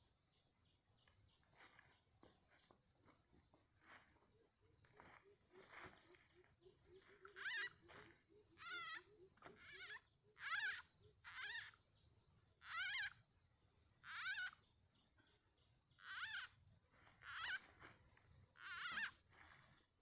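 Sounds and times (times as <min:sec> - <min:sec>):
high insect drone: 0:00.0 - 0:20.0
animal wavering calls: 0:06.2 - 0:11.8, 0:12.6 - 0:13.2.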